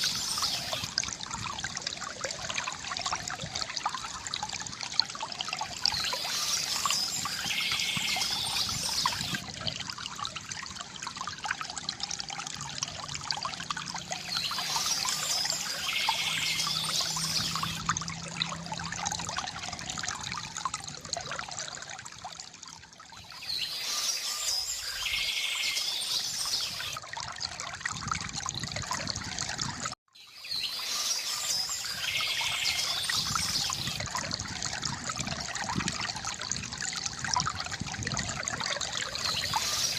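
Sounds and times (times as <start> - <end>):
river water gurgling: 0.0 - 39.9
small birds chirping: 5.9 - 9.4, 14.2 - 17.8.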